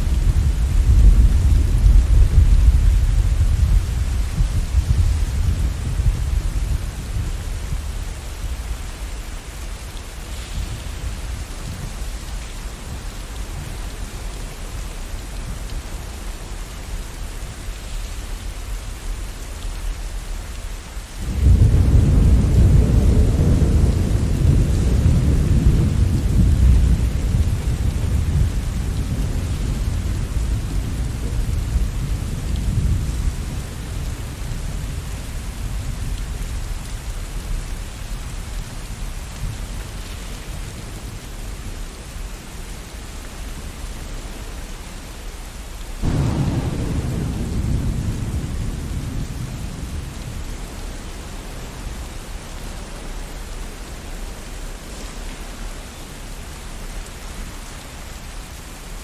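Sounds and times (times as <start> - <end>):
thunder rumbling: 0.0 - 9.6, 21.2 - 37.3, 46.0 - 52.4
steady rain: 0.0 - 59.0.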